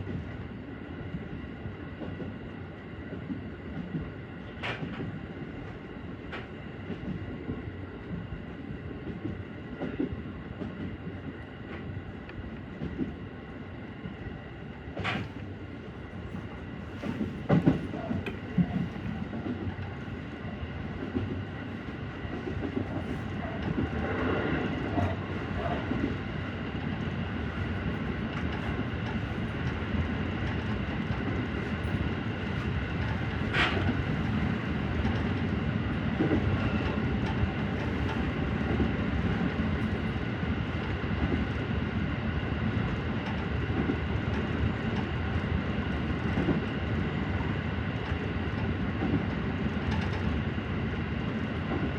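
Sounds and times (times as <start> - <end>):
electric train rumbling: 0.0 - 51.9
train wheel clicks: 30.4 - 35.6.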